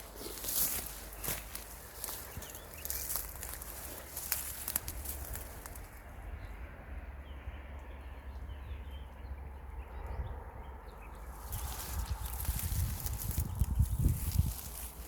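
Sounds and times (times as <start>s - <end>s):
crackling steps: 0.0s - 6.0s, 11.4s - 15.0s
small birds chirping: 0.0s - 6.5s, 7.1s - 15.0s.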